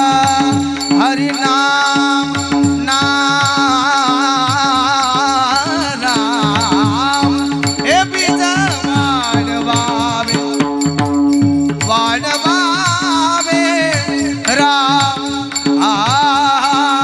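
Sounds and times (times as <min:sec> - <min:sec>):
drum strokes: 0:00.0 - 0:17.0
person singing melismatic melody: 0:00.0 - 0:17.0
small hand cymbals jingling: 0:00.0 - 0:17.0.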